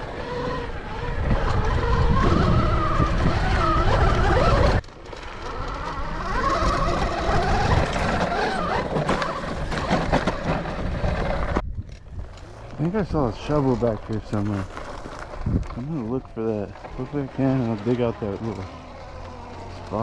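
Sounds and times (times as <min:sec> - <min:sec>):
wind rumble on microphone: 0:00.0 - 0:04.8, 0:05.7 - 0:17.2
electric motor whining: 0:00.0 - 0:11.6, 0:12.3 - 0:20.0.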